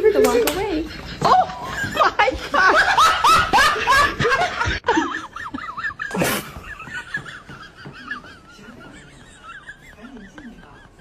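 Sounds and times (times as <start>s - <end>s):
laughter: 0.0s - 11.0s.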